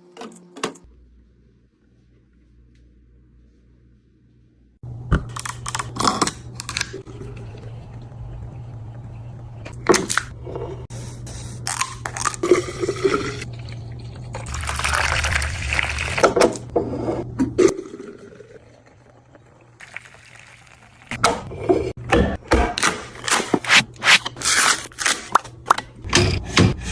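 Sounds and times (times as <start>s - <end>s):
steady low hum: 0.9s - 14.7s
liquid pouring: 12.4s - 16.4s, 17.6s - 21.1s.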